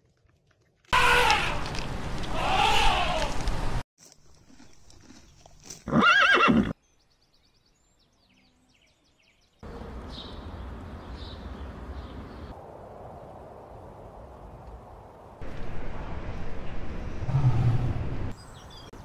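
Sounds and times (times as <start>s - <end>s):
low outdoor rustle: 0.0s - 6.4s
horse whinnying: 5.9s - 6.8s.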